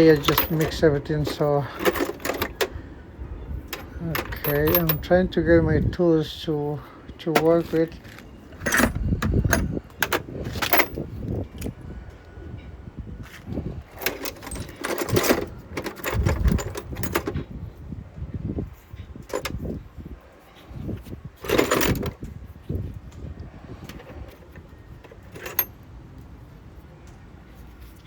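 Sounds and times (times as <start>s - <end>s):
metal tools clinking and rattling: 0.0s - 2.8s, 3.6s - 5.3s, 7.3s - 11.1s, 13.9s - 17.4s, 21.4s - 22.2s, 25.1s - 25.8s.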